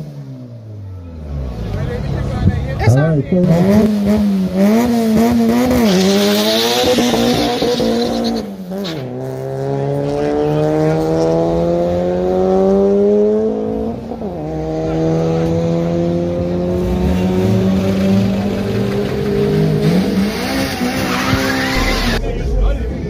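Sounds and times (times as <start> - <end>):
drag car engine revving: 1.3 - 23.0
tyre squeal: 5.8 - 9.1, 20.0 - 22.2.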